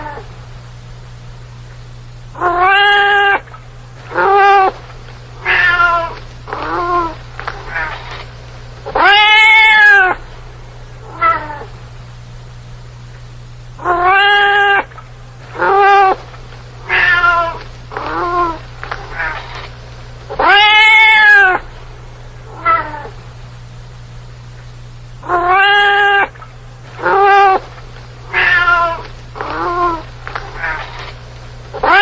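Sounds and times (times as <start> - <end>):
faint low hum: 0.0 - 32.0
cat meowing: 2.4 - 3.4, 4.1 - 4.8, 5.4 - 8.1, 8.9 - 10.2, 11.0 - 11.7, 13.8 - 14.9, 15.6 - 16.2, 16.8 - 19.5, 20.3 - 21.6, 22.5 - 23.2, 25.2 - 26.4, 27.0 - 27.6, 28.3 - 31.0, 31.8 - 32.0.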